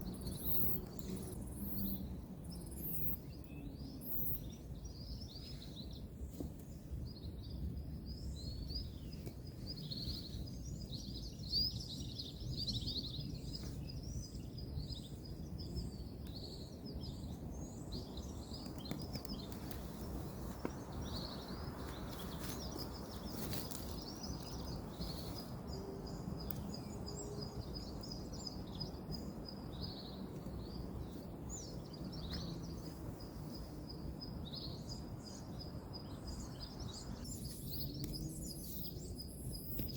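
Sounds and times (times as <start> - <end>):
small birds chirping: 0.0 - 39.9
faint rustling: 18.6 - 25.5.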